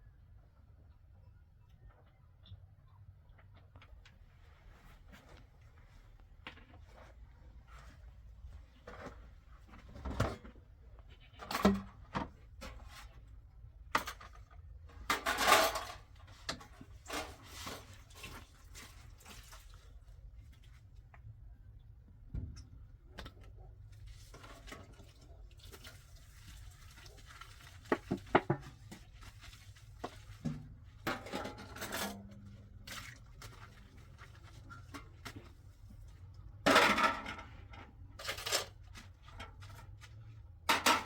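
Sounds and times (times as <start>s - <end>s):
objects clattering and knocking: 6.4s - 20.0s, 22.3s - 41.0s.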